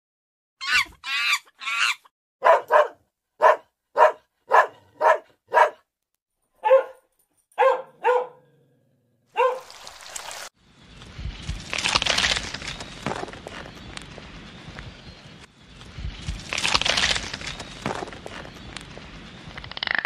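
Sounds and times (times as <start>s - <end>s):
dog barking: 2.4s - 5.9s, 6.6s - 8.6s, 9.3s - 9.7s
dog high drawn-out calls: 9.4s - 9.8s.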